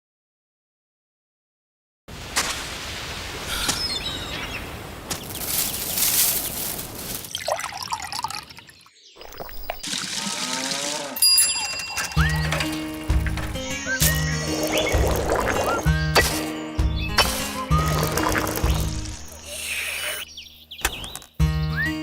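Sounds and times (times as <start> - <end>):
liquid pouring and trickling: 7.1 - 11.7, 17.8 - 19.2
bright bell-like ring: 11.2 - 12.4
music: 12.1 - 19.6, 20.5 - 22.0.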